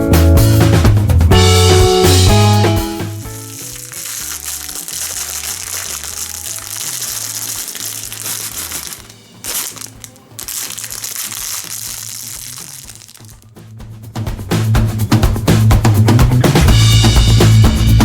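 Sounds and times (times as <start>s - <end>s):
background music with bass line: 0.0s - 18.0s
wrapper crinkling: 3.2s - 13.6s.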